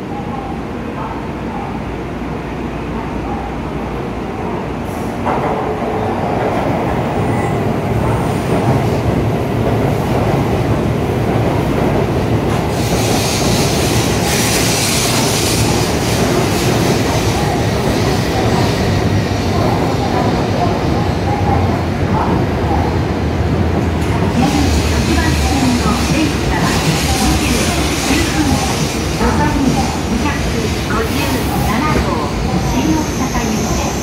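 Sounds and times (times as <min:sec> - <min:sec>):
train wheels rumbling: 0:04.0 - 0:34.0.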